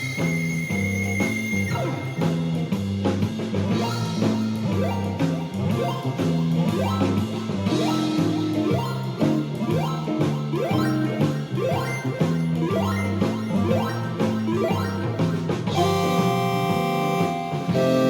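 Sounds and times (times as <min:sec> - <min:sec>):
blues backing drums and bass: 0:00.0 - 0:18.0
square-wave synth lead: 0:03.7 - 0:18.0.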